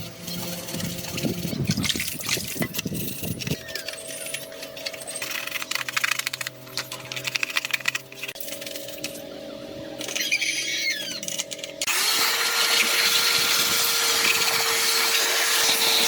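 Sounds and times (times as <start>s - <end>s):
metal tools clinking: 0.3s - 9.2s.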